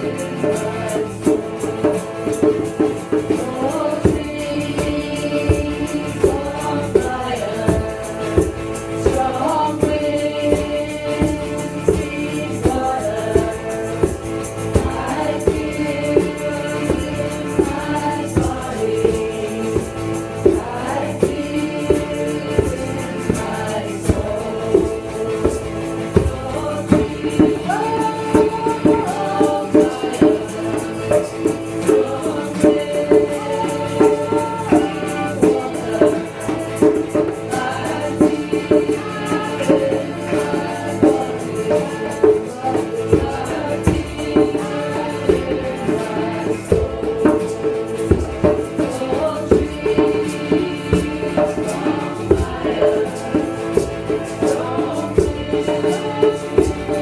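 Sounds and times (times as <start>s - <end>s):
struck percussion beat: 0.0s - 57.0s
voices singing a chant: 0.0s - 57.0s.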